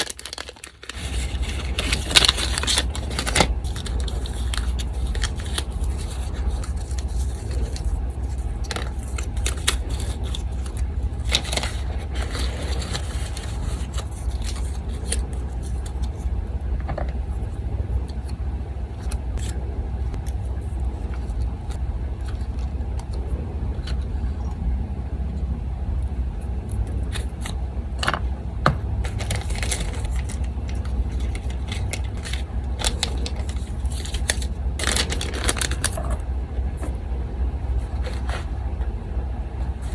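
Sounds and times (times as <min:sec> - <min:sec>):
sharp clicks and rustles: 0:00.0 - 0:16.2, 0:29.0 - 0:36.2
paper handled and scraped: 0:00.0 - 0:16.3, 0:29.0 - 0:36.2, 0:37.7 - 0:38.5
electric fan humming: 0:00.0 - 0:39.9.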